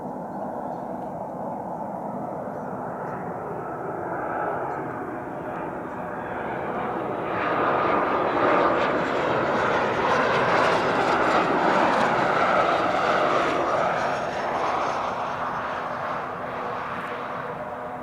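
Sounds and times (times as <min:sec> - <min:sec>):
jet engine roar passing: 0:03.8 - 0:18.0.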